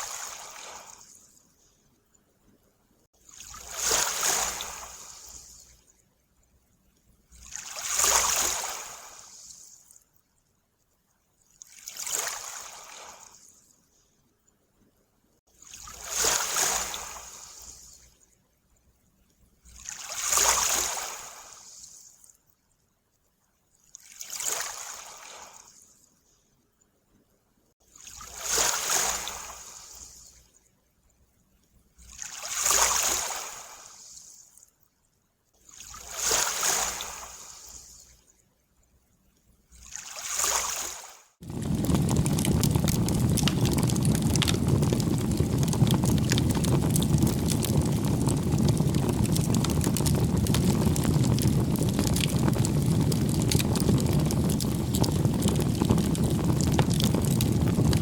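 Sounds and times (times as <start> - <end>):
small waves washing on shore: 3.3 - 5.6, 7.4 - 9.5, 15.6 - 17.9, 19.8 - 21.6, 28.0 - 30.2, 39.9 - 58.0.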